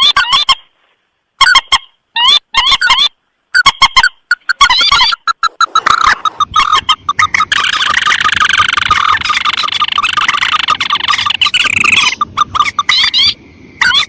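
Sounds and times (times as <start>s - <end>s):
bird calls sharp repeated notes: 1.4s - 14.0s
bird trilling chatter: 3.6s - 14.0s.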